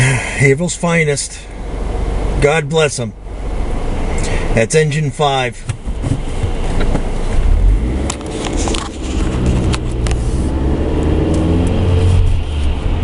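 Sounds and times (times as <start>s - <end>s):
car engine running: 0.0s - 13.0s
low road rumble: 0.0s - 13.0s
clicks inside car: 5.6s - 7.1s.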